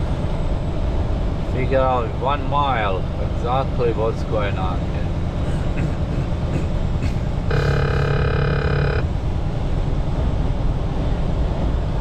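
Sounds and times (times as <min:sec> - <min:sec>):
truck road and engine rumble: 0:00.0 - 0:12.0
truck horn blast: 0:07.5 - 0:09.1.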